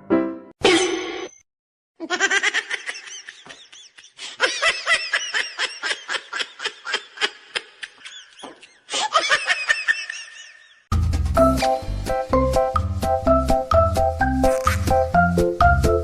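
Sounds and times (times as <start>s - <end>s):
high-pitched giggling laughter: 2.0s - 10.8s.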